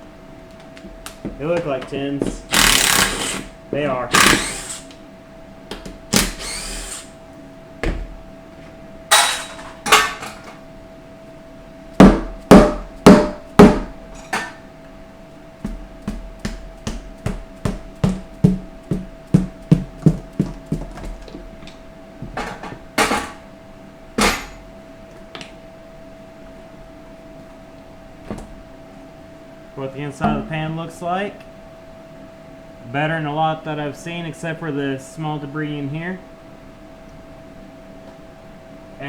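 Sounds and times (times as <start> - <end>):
hand tools clanking on metal: 9.1 - 10.6.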